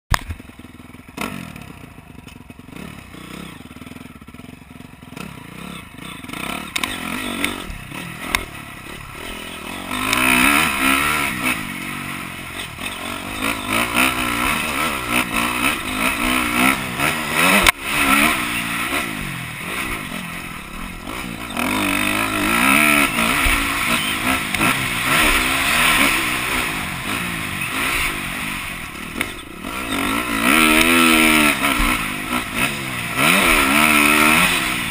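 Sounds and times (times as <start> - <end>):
motocross bike engine revving: 0.1 - 34.9
sharp click: 6.7 - 7.6, 8.2 - 8.5.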